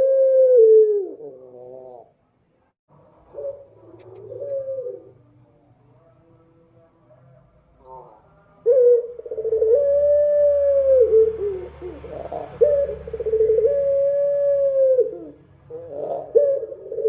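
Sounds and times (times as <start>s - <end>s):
dove cooing: 0.0s - 2.2s, 3.2s - 5.2s, 7.8s - 17.0s.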